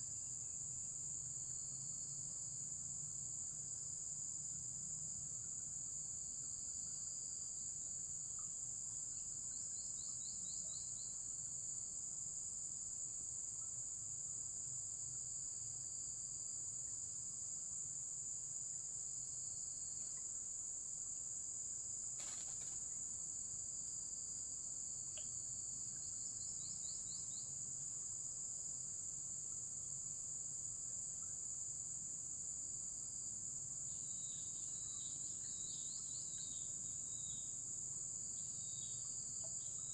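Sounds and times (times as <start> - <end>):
quick repeated insect chirps: 21.9 - 27.6
insects singing: 22.2 - 23.0.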